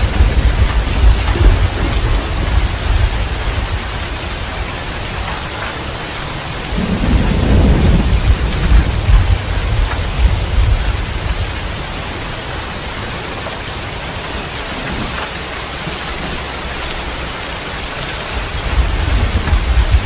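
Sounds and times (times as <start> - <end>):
low rumble: 0.0 - 5.6, 6.6 - 12.9, 18.2 - 20.0
steady rain hiss: 0.0 - 20.0.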